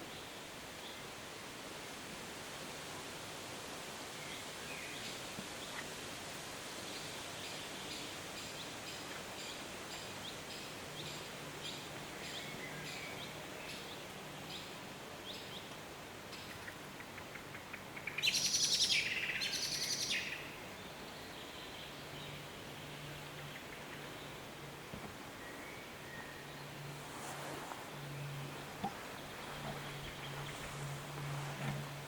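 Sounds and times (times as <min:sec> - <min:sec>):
birds singing: 0:16.3 - 0:24.4.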